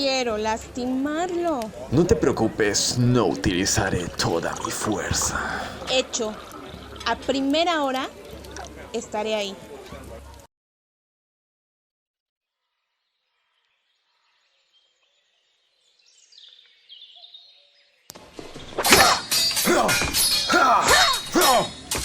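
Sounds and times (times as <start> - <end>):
faint bird chirps: 12.8 - 19.6.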